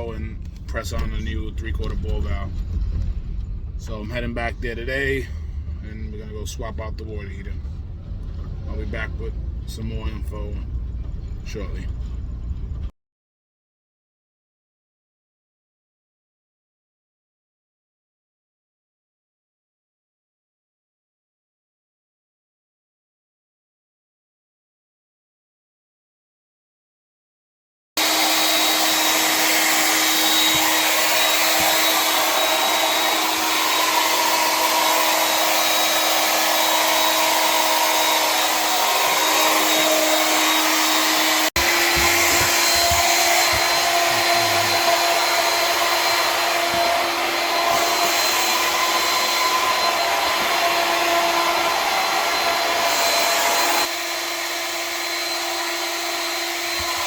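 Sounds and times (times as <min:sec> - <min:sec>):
small motor running with hum: 0:28.0 - 0:57.0.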